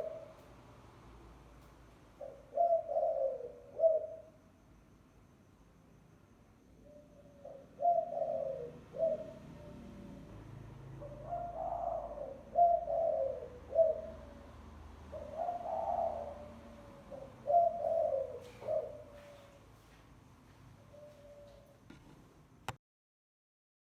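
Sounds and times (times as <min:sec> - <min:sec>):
dove cooing: 0:00.0 - 0:00.4, 0:02.2 - 0:04.4, 0:06.8 - 0:19.9, 0:20.8 - 0:21.8.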